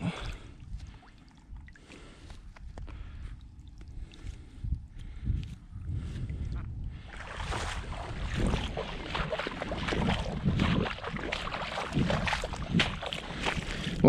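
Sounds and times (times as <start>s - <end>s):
wind on microphone: 4.0s - 14.0s.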